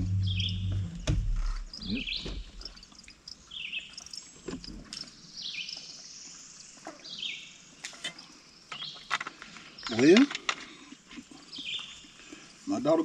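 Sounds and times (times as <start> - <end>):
bird singing falling phrase: 0.0 - 2.9.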